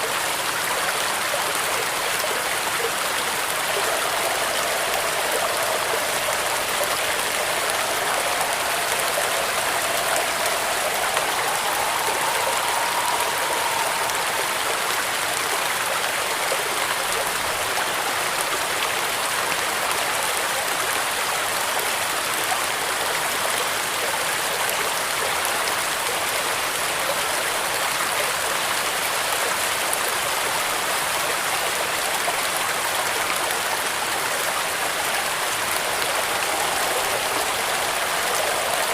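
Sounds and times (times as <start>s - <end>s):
rain on a metal roof: 0.0s - 38.9s
faint whistling tone: 1.3s - 17.6s, 34.8s - 38.9s.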